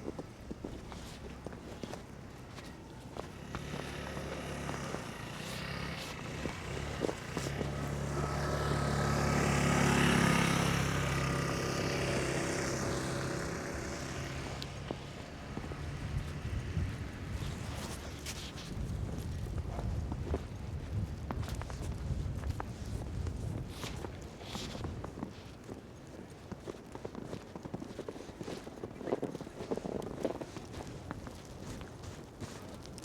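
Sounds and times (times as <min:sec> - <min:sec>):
vehicle engine passing: 0:01.4 - 0:18.7.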